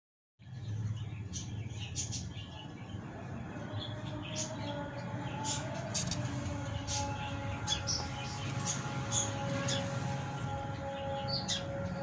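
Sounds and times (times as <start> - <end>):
pet birds chirping: 0.5 - 3.0.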